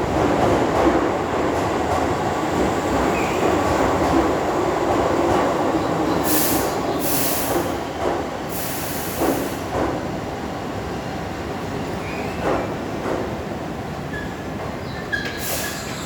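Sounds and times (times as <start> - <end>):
short hisses of air: 6.2 - 7.7, 8.5 - 9.6.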